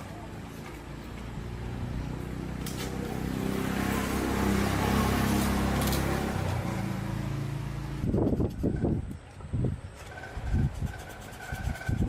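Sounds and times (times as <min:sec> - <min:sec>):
engine humming: 0:00.0 - 0:09.3.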